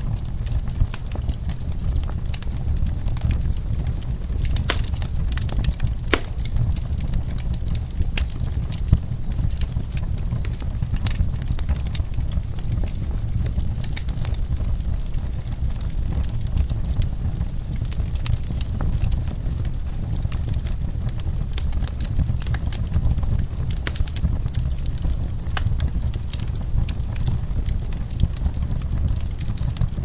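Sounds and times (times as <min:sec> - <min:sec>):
low rumble of flames: 0:00.1 - 0:30.0
wood fire pops and snaps: 0:04.6 - 0:05.3, 0:06.1 - 0:06.8.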